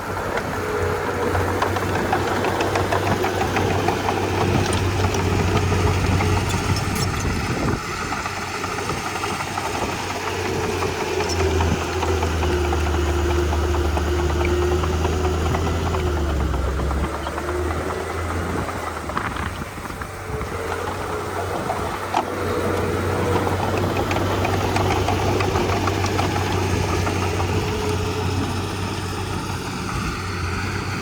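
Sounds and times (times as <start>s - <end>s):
bulldozer diesel engine running: 0.0s - 31.0s
light clicks and clanks: 1.4s - 7.4s.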